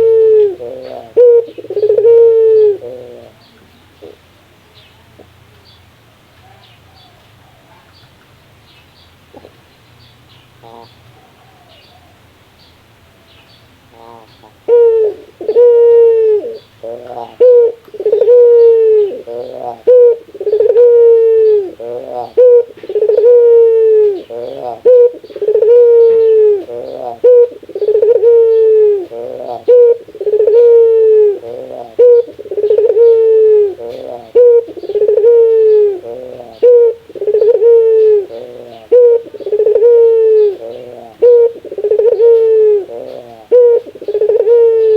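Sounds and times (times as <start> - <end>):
dove laughing call: 0.0 - 4.2, 13.9 - 44.9.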